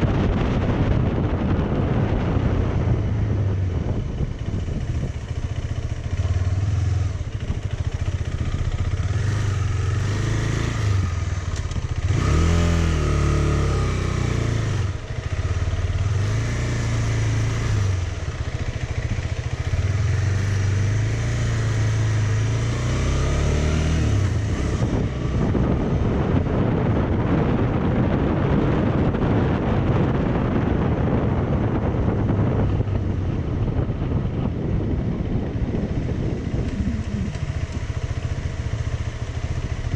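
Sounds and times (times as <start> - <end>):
motorcycle engine revving: 0.0 - 39.9
rough rushing noise: 34.1 - 39.9.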